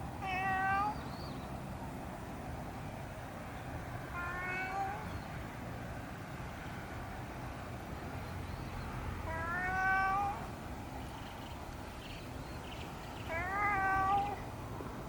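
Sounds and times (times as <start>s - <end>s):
low background noise: 0.0s - 15.0s
cat meowing: 0.2s - 1.0s, 4.1s - 5.0s, 9.2s - 10.5s, 13.2s - 14.4s.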